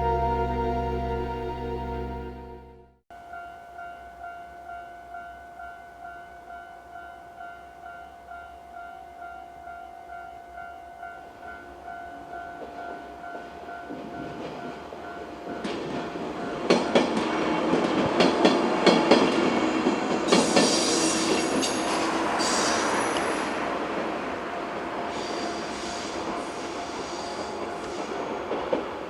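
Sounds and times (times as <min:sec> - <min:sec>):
level-crossing alarm bell: 0:03.2 - 0:17.2
train rumbling: 0:11.4 - 0:29.0
wheels clacking over rail joints: 0:13.4 - 0:25.3.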